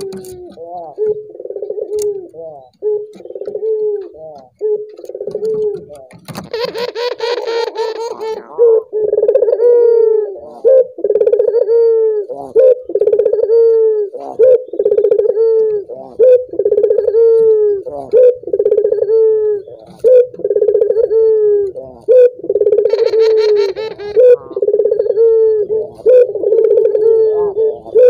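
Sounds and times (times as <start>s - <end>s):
dove cooing: 0.0s - 28.0s.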